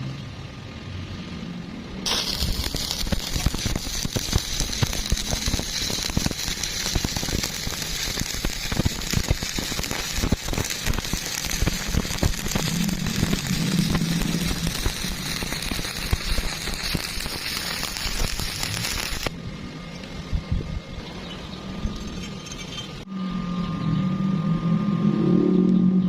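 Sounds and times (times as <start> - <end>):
welding arc crackling and popping: 2.0 - 19.4.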